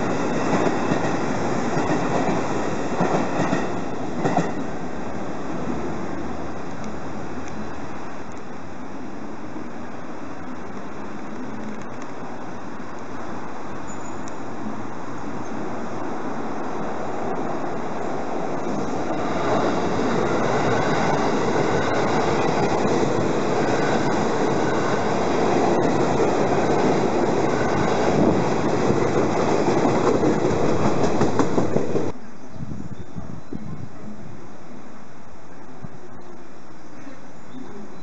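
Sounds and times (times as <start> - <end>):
wheels clacking over rail joints: 0.0 - 4.7, 18.5 - 32.2
electric train rumbling past: 0.0 - 32.4.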